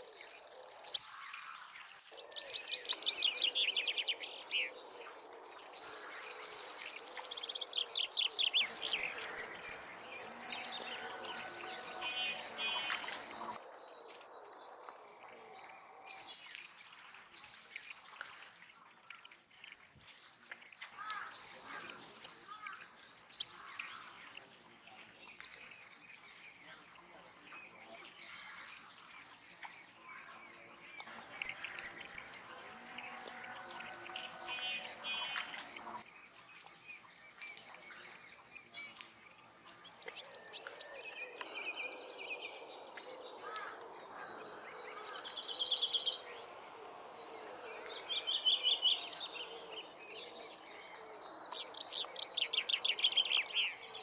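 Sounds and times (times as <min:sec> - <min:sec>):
bird trills: 0:00.0 - 0:04.1, 0:05.8 - 0:07.0, 0:07.6 - 0:14.0, 0:15.2 - 0:24.4, 0:25.0 - 0:26.5, 0:28.2 - 0:28.8, 0:31.2 - 0:36.5
birds chirping: 0:00.0 - 0:54.0.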